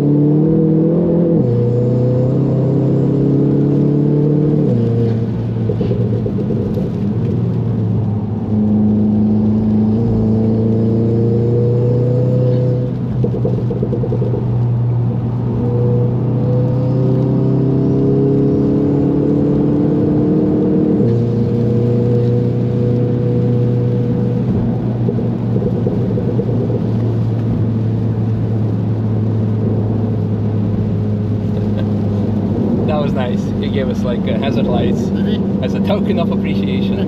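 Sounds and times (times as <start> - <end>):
car engine accelerating: 0.0 - 37.0.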